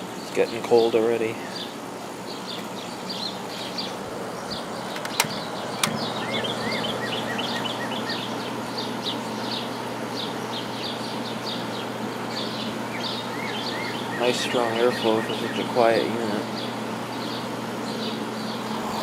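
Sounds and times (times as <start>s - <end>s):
air conditioner fan rushing: 0.0s - 19.0s
compressor hum: 18.4s - 19.0s.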